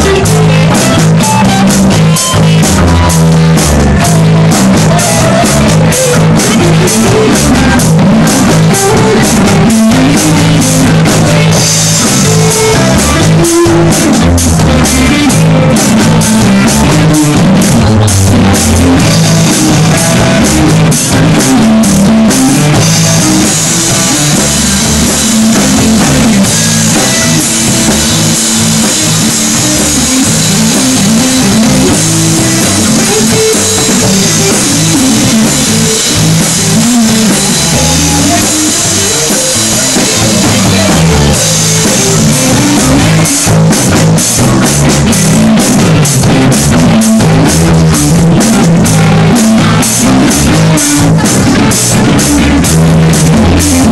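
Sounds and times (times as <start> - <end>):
bass guitar: 0.0 - 53.9
drum kit: 0.0 - 53.9
electric guitar: 0.0 - 53.9.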